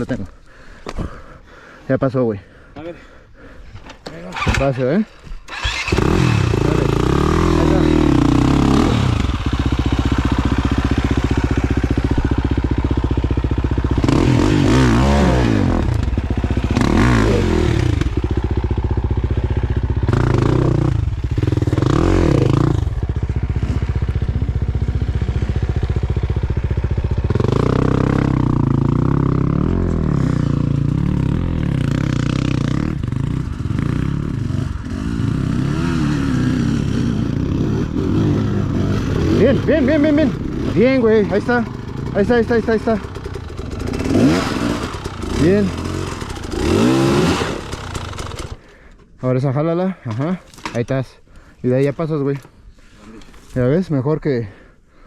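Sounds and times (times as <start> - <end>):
dirt bike engine revving: 5.5 - 48.7.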